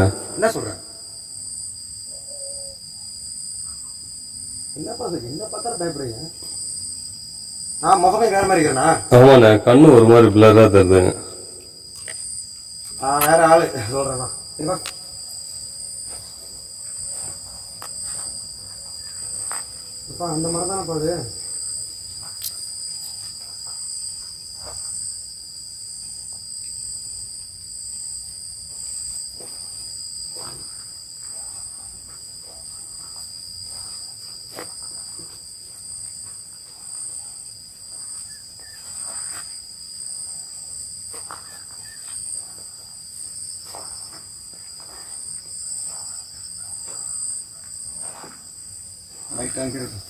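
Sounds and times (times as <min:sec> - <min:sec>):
crickets trilling: 0:00.0 - 0:50.0.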